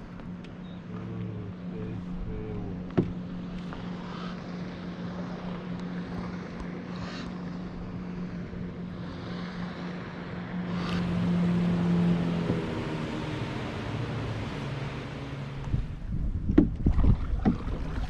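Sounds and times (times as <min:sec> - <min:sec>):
distant motor droning: 0:00.0 - 0:18.0
wind noise on microphone: 0:15.6 - 0:18.0.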